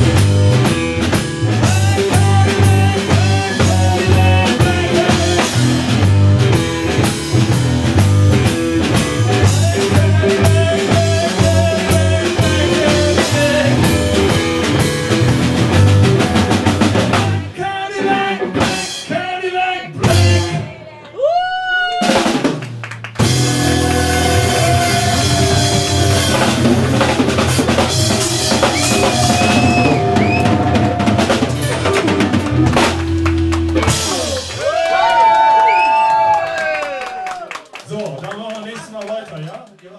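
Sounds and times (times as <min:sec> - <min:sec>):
blues-rock band playing live: 0:00.0 - 0:19.3, 0:20.0 - 0:20.8, 0:22.0 - 0:34.8
drum hits: 0:22.1 - 0:34.8
bending electric guitar note: 0:23.4 - 0:34.2.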